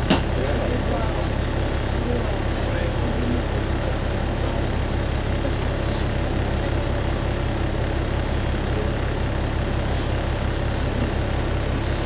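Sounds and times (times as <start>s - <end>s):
diesel railcar engine throb: 0.0s - 12.0s.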